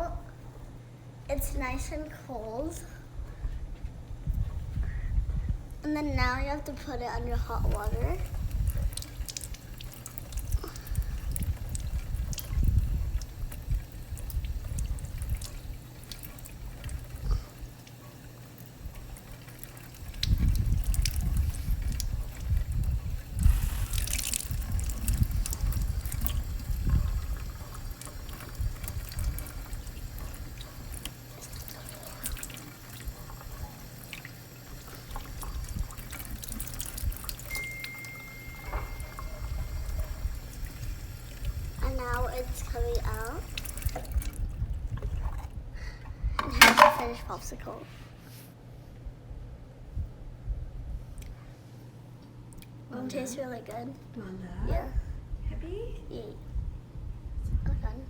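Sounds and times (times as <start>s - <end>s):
tap water splashing on plastic: 19.2s - 37.5s, 40.7s - 45.5s.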